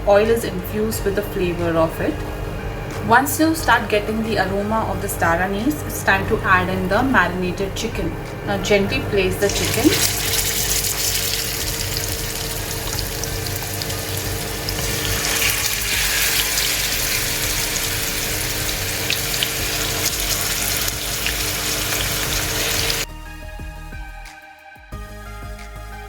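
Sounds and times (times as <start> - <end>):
faint background music: 0.0 - 25.8
chicken sizzling in hot oil: 9.5 - 23.1.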